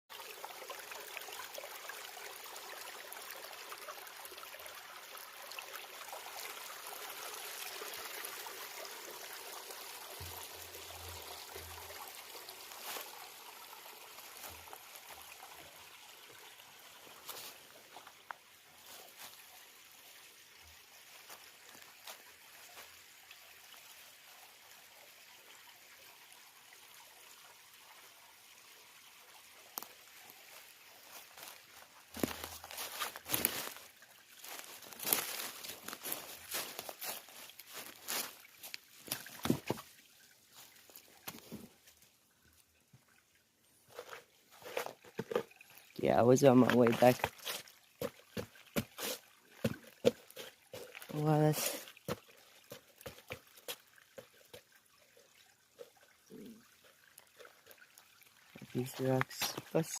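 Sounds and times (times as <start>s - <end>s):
creek water trickling: 0.1s - 60.0s.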